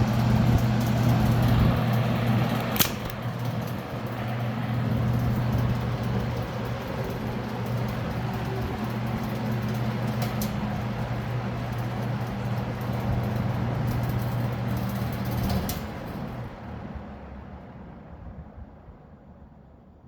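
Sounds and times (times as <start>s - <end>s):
electric box fan running: 0.0s - 18.6s
sharp click: 2.5s - 3.2s.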